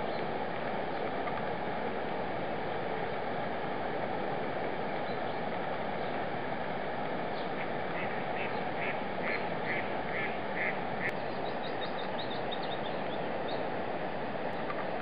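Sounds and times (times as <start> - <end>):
birds calling and chirping: 7.3 - 13.7.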